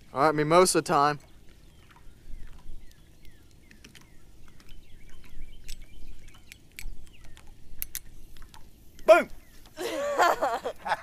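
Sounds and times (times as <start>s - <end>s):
small birds chirping: 0.0s - 10.5s
sharp clicks and snaps: 5.6s - 8.6s.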